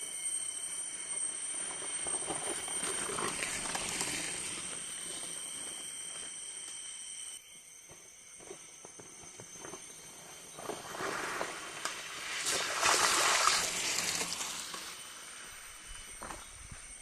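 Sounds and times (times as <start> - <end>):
water splashing: 12.4 - 14.8.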